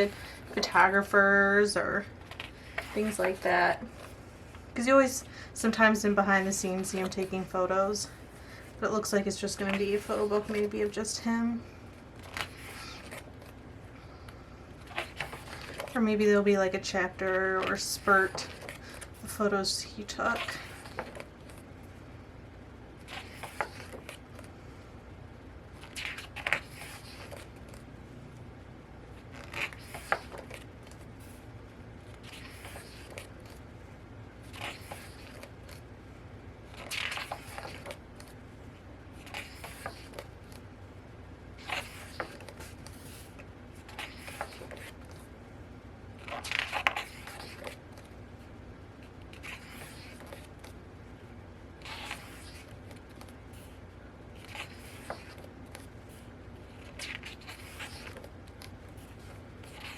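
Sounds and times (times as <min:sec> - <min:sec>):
book pages turning: 0:02.0 - 0:04.7, 0:08.6 - 0:13.6, 0:14.2 - 0:16.2, 0:17.2 - 0:19.4, 0:20.3 - 0:21.7, 0:23.0 - 0:24.6, 0:25.7 - 0:27.9, 0:29.1 - 0:33.7, 0:34.4 - 0:35.9, 0:36.6 - 0:40.7, 0:41.6 - 0:45.3, 0:46.2 - 0:48.2, 0:49.0 - 0:50.8, 0:51.8 - 0:59.9.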